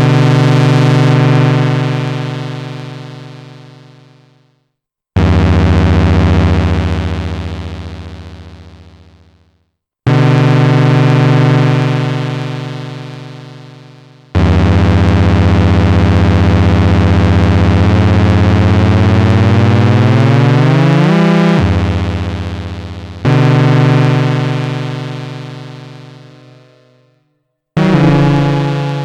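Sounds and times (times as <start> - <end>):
buzzy synthesizer notes: 14.4 - 27.1, 27.8 - 29.0.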